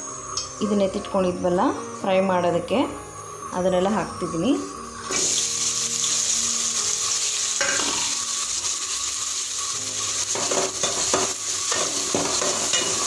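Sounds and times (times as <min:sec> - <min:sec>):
food sizzling in hot oil: 0:05.0 - 0:13.0
metal spatula scraping a pan: 0:10.0 - 0:13.0.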